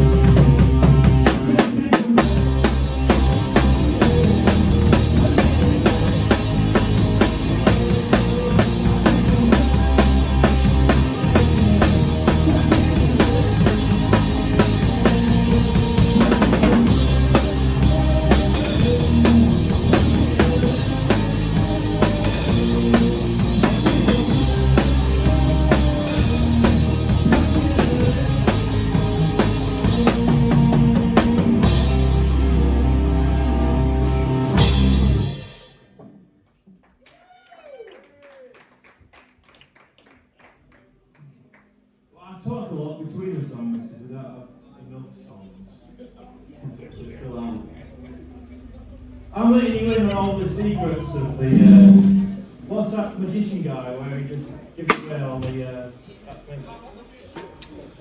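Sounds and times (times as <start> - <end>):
sustained bass notes: 0.0 - 1.5, 2.3 - 35.3, 50.3 - 52.8
live rock band playing: 0.0 - 35.7, 51.5 - 52.7
bass drum and snare beat: 2.3 - 32.0, 51.5 - 52.7.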